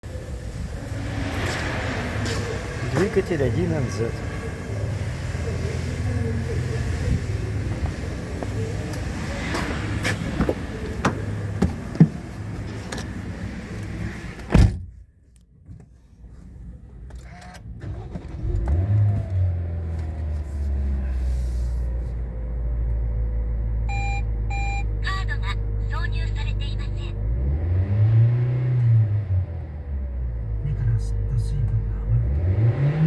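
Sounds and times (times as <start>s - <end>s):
car engine starting and idling: 0.0s - 33.0s
loud thump: 14.5s - 15.0s.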